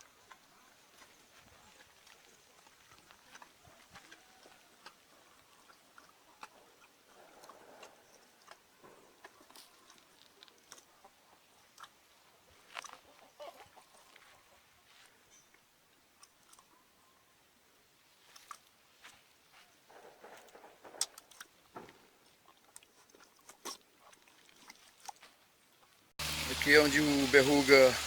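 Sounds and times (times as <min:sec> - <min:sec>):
donkey chewing grass: 0:00.0 - 0:15.6.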